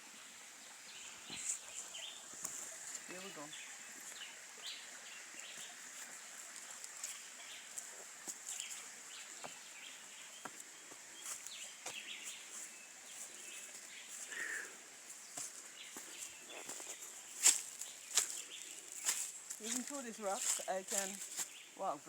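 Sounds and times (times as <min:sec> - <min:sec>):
steady high-pitched hiss: 0:00.0 - 0:22.0.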